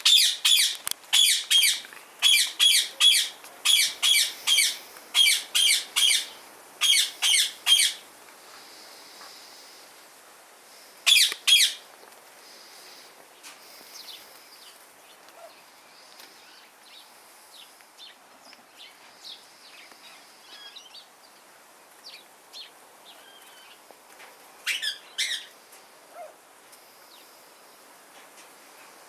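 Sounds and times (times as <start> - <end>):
birds chirping: 0.0 - 9.8, 11.0 - 11.9, 12.5 - 23.9, 24.6 - 25.6.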